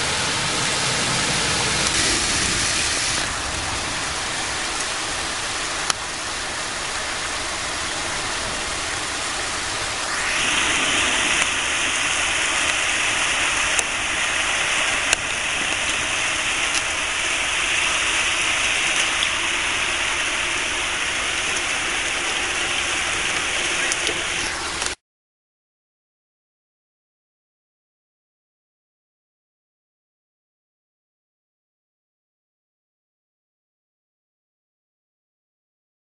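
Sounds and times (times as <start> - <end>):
heavy rain: 0.0 - 25.0
running water: 0.0 - 25.0
faint sharp clicks: 23.3 - 25.0.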